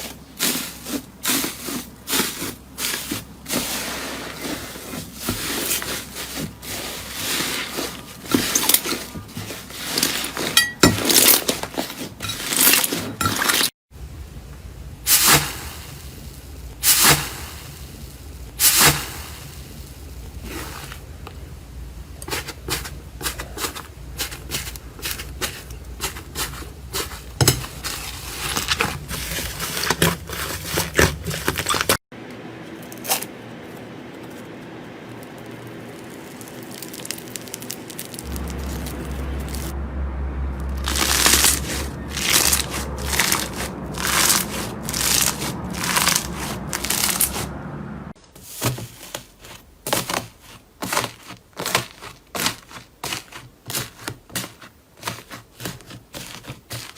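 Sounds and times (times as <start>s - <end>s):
slime crackling and popping: 33.0s - 39.7s, 40.6s - 47.4s.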